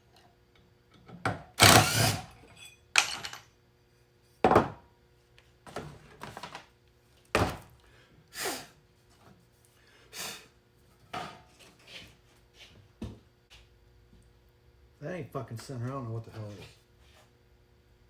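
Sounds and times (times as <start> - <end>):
metal parts knocking and clinking: 2.5 - 3.5.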